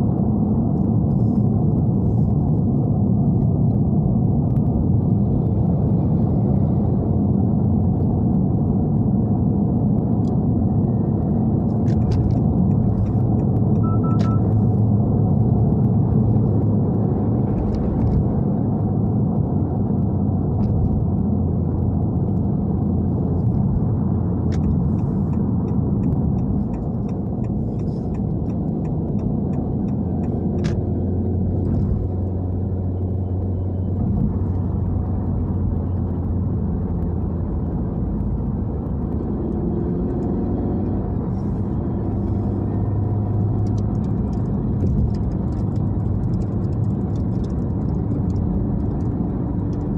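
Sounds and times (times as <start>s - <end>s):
car engine drone from inside cabin: 0.0s - 49.9s.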